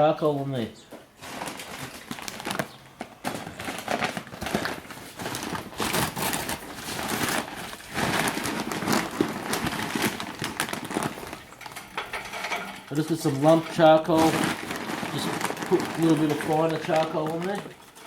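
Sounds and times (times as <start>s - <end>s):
charcoal clattering onto a grill: 11.2s - 14.2s.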